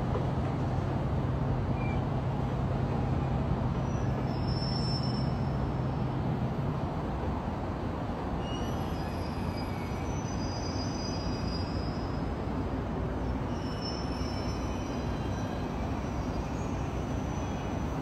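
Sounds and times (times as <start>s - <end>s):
city traffic hum: 0.0s - 18.0s
distant train rumble: 0.0s - 18.0s
faint high wheel squeal: 1.7s - 2.1s, 3.2s - 5.9s, 8.4s - 12.6s, 13.2s - 18.0s.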